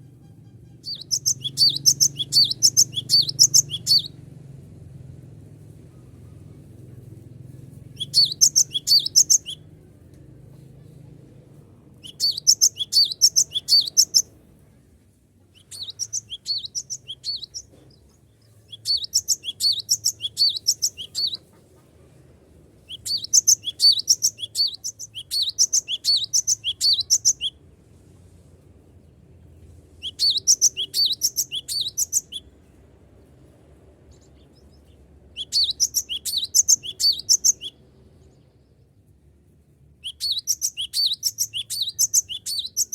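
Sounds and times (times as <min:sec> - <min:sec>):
bird singing high-pitched notes: 0:00.4 - 0:04.2, 0:08.0 - 0:09.7, 0:12.0 - 0:14.3, 0:15.6 - 0:17.7, 0:18.7 - 0:21.4, 0:22.9 - 0:27.6, 0:30.0 - 0:32.5, 0:35.4 - 0:37.8, 0:40.0 - 0:42.9.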